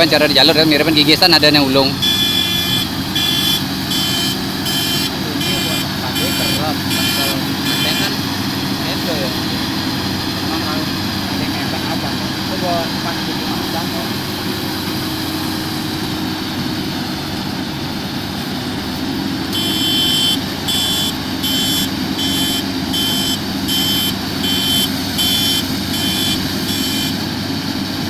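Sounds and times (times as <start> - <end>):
combine harvester engine running: 0.0 - 28.0
reversing alarm beeping: 1.8 - 8.2, 19.5 - 27.3.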